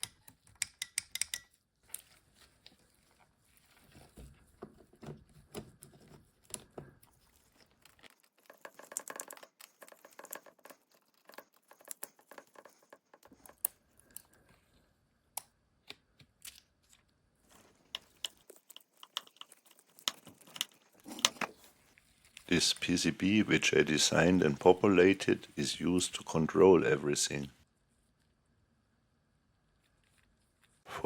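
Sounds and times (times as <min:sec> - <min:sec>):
small clicks and taps: 0:00.0 - 0:02.2, 0:04.2 - 0:14.4, 0:17.8 - 0:21.5
crinkling of handled parts: 0:00.0 - 0:14.9, 0:16.1 - 0:25.6.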